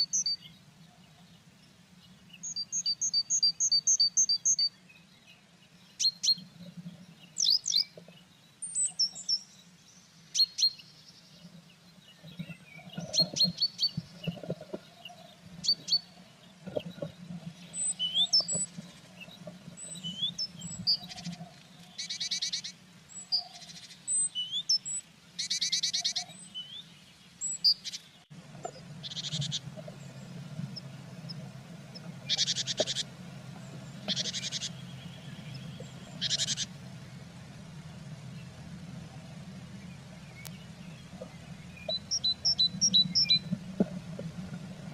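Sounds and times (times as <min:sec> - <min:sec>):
songbirds chirping and trilling: 0:00.0 - 0:44.9
steady low hum: 0:28.3 - 0:44.9.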